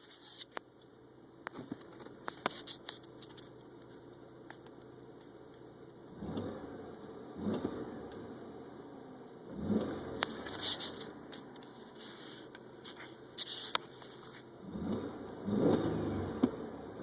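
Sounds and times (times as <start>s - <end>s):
car engine revving: 4.7s - 17.0s.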